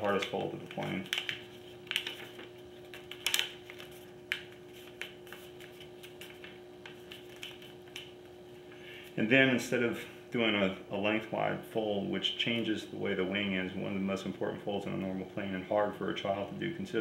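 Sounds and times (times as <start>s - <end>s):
paper being folded and creased: 0.0s - 8.1s
faint steady hum: 0.0s - 17.0s.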